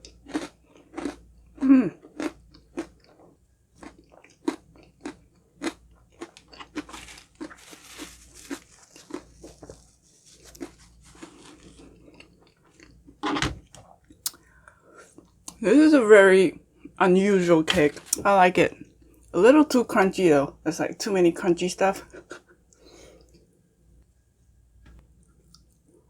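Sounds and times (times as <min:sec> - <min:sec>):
crunchy cake being chewed: 0:00.0 - 0:14.4.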